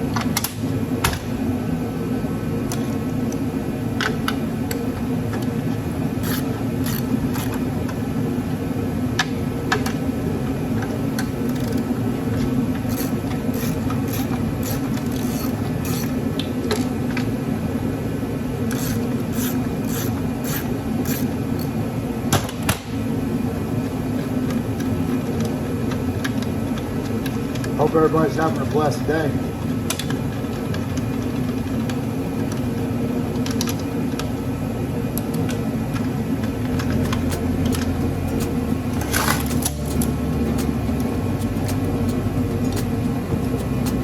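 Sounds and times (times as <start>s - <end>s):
fan humming: 0.0s - 44.0s
hand tools clicking on metal: 12.9s - 16.2s, 18.7s - 21.7s.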